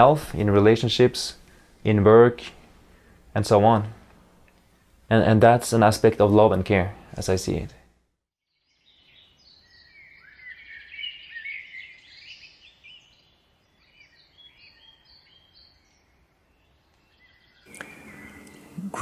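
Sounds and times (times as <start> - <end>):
faint steady hiss: 0.0 - 8.0, 17.7 - 19.0
small birds chirping: 8.5 - 19.0.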